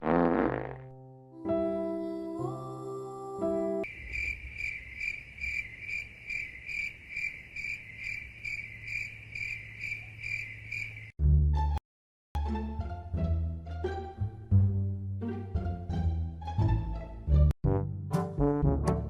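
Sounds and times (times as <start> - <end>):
cricket chirping: 3.8 - 11.2.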